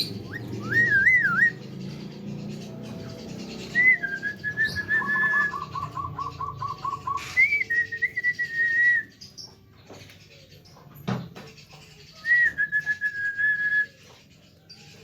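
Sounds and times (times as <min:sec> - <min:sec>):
bird whistling: 0:00.0 - 0:01.8, 0:03.4 - 0:09.4, 0:12.2 - 0:14.1.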